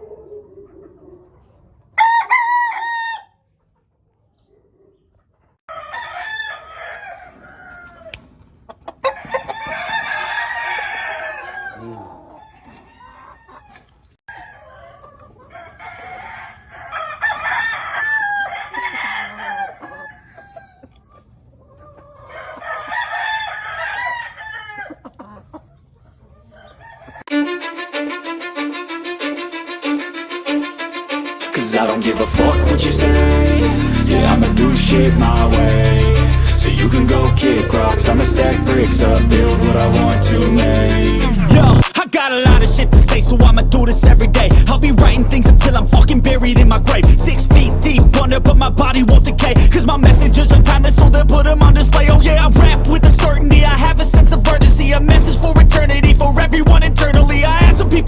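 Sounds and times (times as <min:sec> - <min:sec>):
roosters crowing: 0:02.0 - 0:03.4, 0:05.7 - 0:08.2, 0:08.9 - 0:20.8, 0:22.1 - 0:25.1, 0:26.4 - 0:27.3
background music with bowed string: 0:27.3 - 0:41.8.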